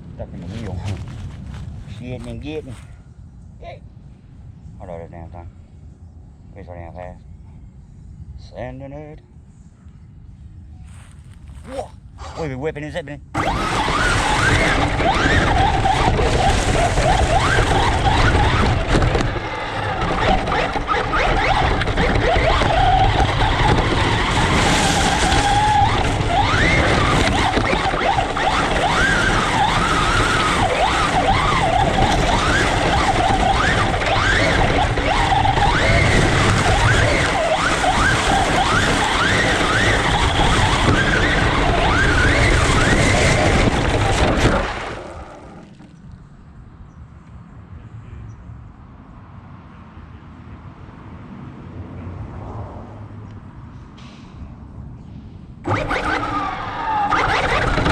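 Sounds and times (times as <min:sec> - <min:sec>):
steady rumble: 0:00.0 - 0:47.9, 0:52.9 - 0:57.9
toy truck motor whining: 0:13.4 - 0:45.9, 0:55.7 - 0:57.9.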